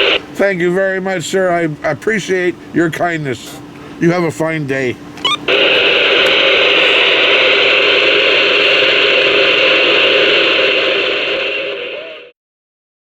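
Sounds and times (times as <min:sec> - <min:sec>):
radio static hiss: 0:00.0 - 0:00.3, 0:05.2 - 0:12.3.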